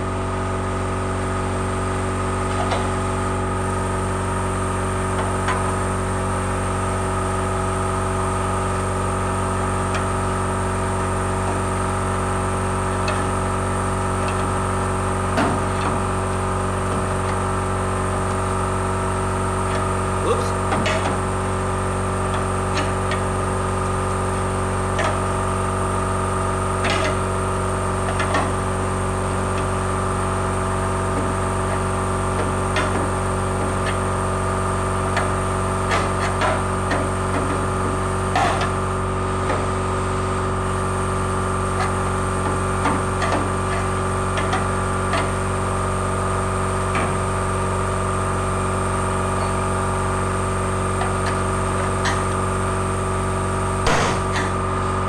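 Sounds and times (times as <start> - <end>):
steady mechanical hum: 0.0 - 55.0
hand tools knocking sheet metal: 53.9 - 54.6.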